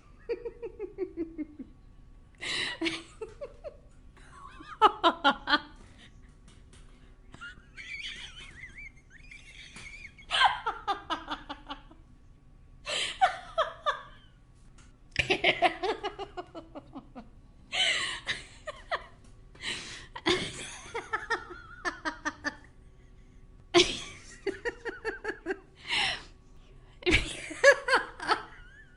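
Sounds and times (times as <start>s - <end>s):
woman laughing: 0.0s - 1.7s, 2.4s - 5.8s, 7.3s - 12.0s, 12.9s - 14.3s, 15.2s - 19.2s, 20.2s - 22.7s, 23.8s - 26.2s, 27.0s - 28.9s
woman breathing: 2.4s - 2.8s, 12.9s - 13.2s, 17.7s - 18.3s, 19.5s - 20.2s, 25.8s - 26.4s.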